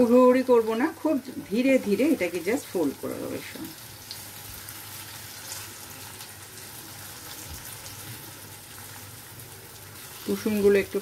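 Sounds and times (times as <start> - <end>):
eggs sizzling in a pan: 0.0 - 11.0.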